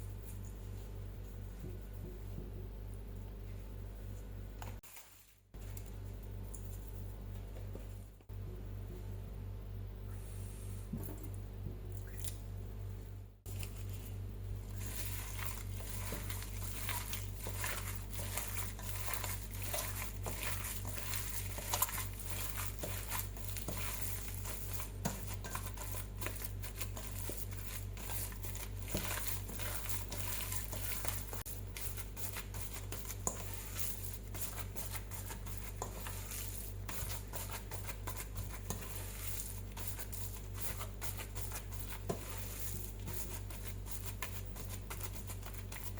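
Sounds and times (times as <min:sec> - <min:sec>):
steady low hum: 0:00.0 - 0:45.9
hands squishing raw mince: 0:14.7 - 0:45.9.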